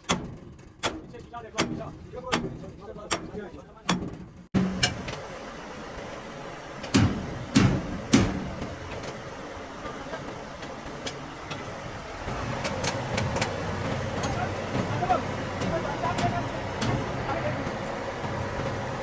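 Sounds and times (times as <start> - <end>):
steady background hum: 0.5 - 19.0
loud knocks: 6.9 - 9.1.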